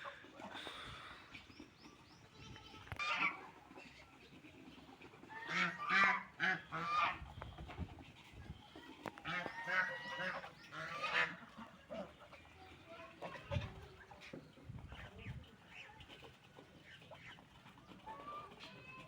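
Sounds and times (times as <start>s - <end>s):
ducks quacking: 2.8s - 8.4s, 9.1s - 19.0s.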